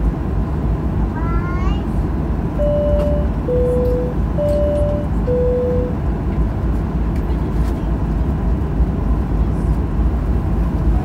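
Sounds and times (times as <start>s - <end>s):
aircraft cabin rumble: 0.0s - 11.0s
two-tone cabin chime: 2.6s - 6.0s.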